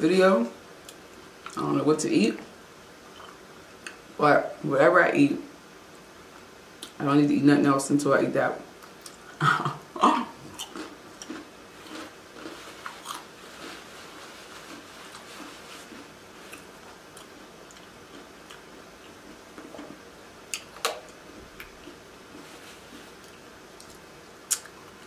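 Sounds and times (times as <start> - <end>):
chewing with wet mouth sounds: 10.4 - 13.8, 14.6 - 22.5.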